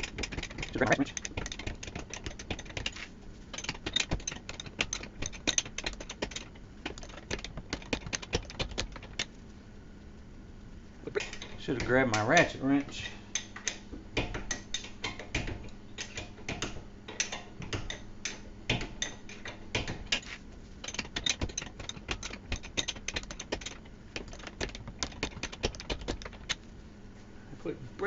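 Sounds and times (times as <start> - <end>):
ratcheting wrench clicking: 0.0 - 3.0, 3.6 - 9.3, 20.8 - 26.6.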